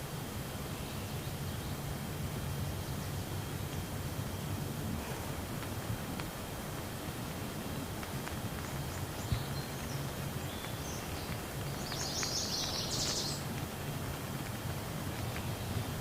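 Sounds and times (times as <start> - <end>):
steady rain hiss: 0.0 - 16.0
bird chirping: 8.6 - 13.5.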